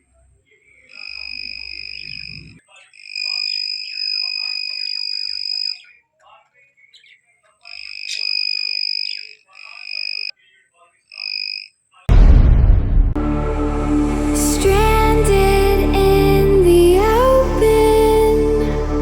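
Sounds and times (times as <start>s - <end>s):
loud sudden burst: 12.1s - 17.8s
music: 12.2s - 19.0s.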